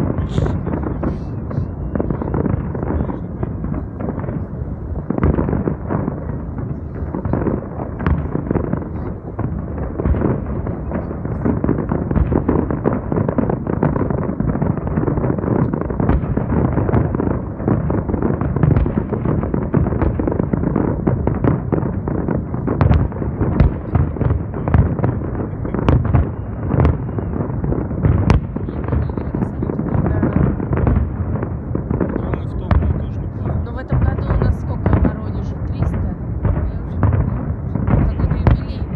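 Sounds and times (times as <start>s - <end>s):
fireworks bursting and crackling: 0.0s - 38.9s.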